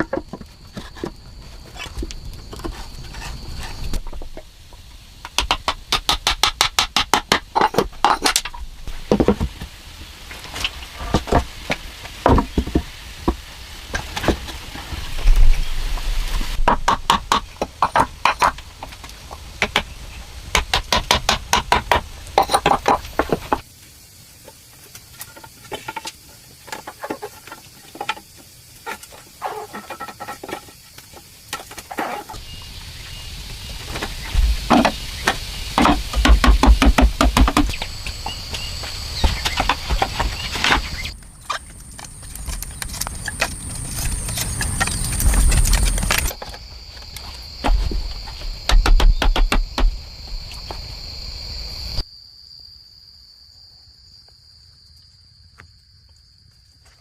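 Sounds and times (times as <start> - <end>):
knocks and thumps from hand work: 0.0 - 1.2, 5.2 - 9.7, 11.0 - 14.6, 16.6 - 18.9, 20.5 - 23.6, 33.9 - 38.2, 47.6 - 50.0
insects trilling: 0.0 - 57.0.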